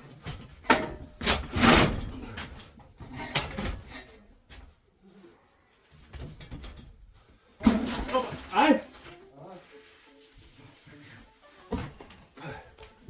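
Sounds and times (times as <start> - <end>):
objects knocking and clunking: 0.0 - 4.6, 5.9 - 8.7, 11.6 - 13.0.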